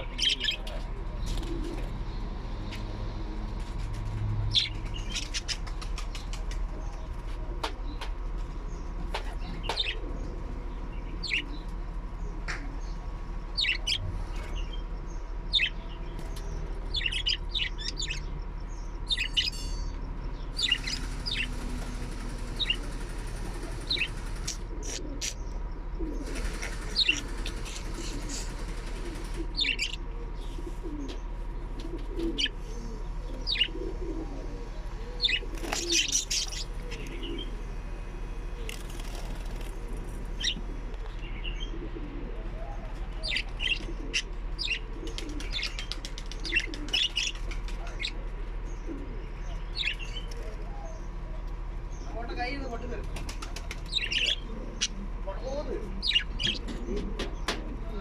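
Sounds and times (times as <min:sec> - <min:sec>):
steady low hum: 0:00.0 - 0:58.0
small parrots chirping: 0:04.5 - 0:05.7, 0:13.5 - 0:14.0, 0:15.5 - 0:21.6, 0:29.6 - 0:30.0, 0:33.4 - 0:33.8, 0:35.2 - 0:37.6, 0:43.2 - 0:48.2, 0:53.8 - 0:55.0, 0:56.0 - 0:56.8.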